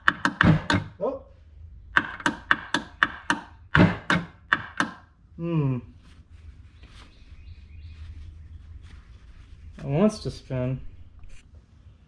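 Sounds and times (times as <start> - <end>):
electric starter knocking: 0.0 - 1.0, 2.0 - 5.1.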